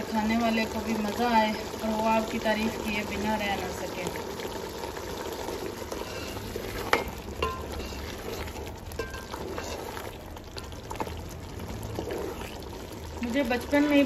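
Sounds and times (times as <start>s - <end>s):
masala frying and bubbling: 0.0s - 14.0s
wooden spatula scraping pot: 5.4s - 14.0s.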